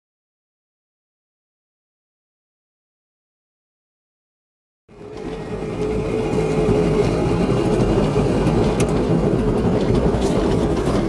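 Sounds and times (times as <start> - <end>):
van engine and tyre hum: 4.9 - 11.0.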